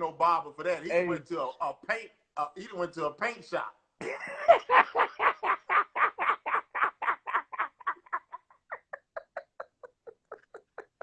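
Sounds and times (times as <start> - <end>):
man laughing: 4.0 - 11.0.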